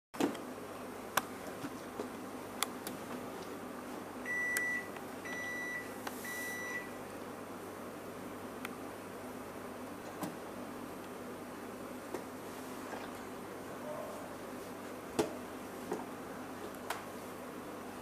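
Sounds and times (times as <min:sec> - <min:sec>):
refrigerator alarm beeping: 0:04.2 - 0:07.0.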